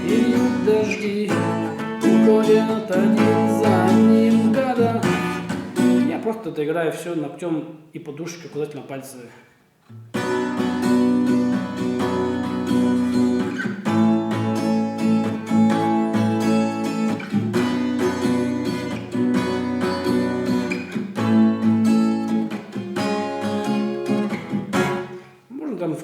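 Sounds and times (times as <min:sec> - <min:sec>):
acoustic guitar strumming: 0:00.0 - 0:06.3, 0:09.9 - 0:25.5.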